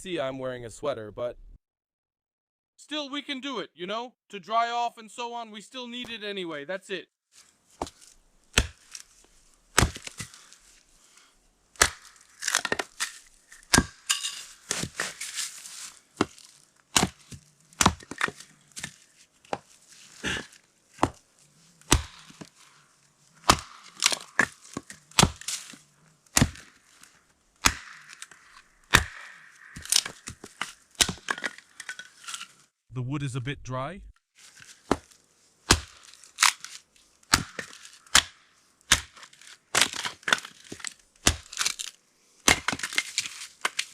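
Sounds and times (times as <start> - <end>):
axe blade striking wood: 7.8 - 8.9, 9.8 - 10.4, 11.8 - 13.0, 13.6 - 15.2, 17.0 - 18.9, 21.9 - 22.5, 23.4 - 25.6, 26.3 - 26.7, 27.6 - 31.6, 35.7 - 36.7, 37.3 - 41.8, 42.5 - 43.1
dry wood cracking and splintering: 7.8 - 10.7, 11.8 - 21.2, 23.4 - 32.5, 35.7 - 38.3, 38.9 - 43.9.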